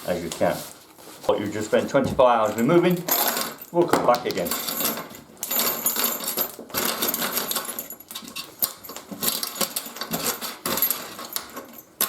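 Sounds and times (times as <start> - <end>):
drill bits rattling in container: 2.4 - 12.0.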